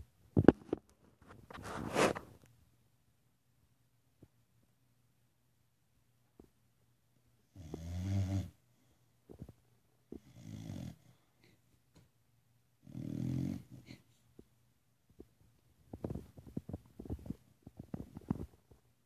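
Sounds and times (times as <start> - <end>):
dog snoring: 7.5 - 8.6, 10.2 - 11.2, 12.8 - 14.0.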